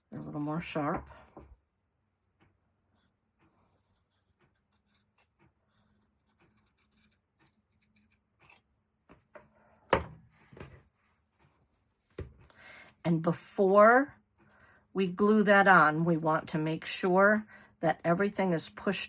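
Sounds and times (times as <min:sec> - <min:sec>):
knocks of objects handled: 0:09.0 - 0:10.8, 0:12.1 - 0:12.5.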